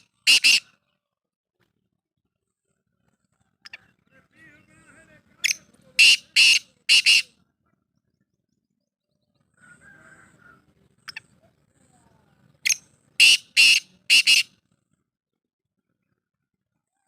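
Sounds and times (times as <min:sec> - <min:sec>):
bird harsh calls: 0:00.0 - 0:00.8, 0:05.4 - 0:07.3, 0:12.6 - 0:14.5.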